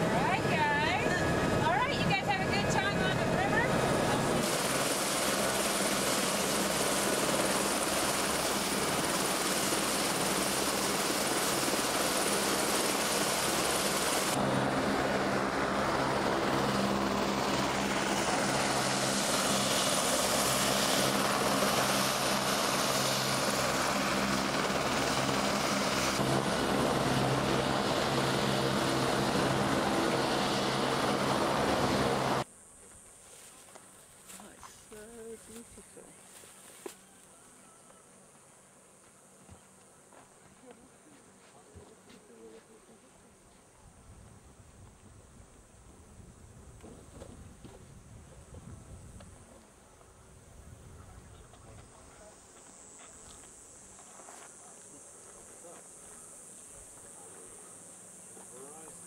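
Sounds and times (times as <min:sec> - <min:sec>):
helicopter engine and rotor noise: 0:00.0 - 0:32.5.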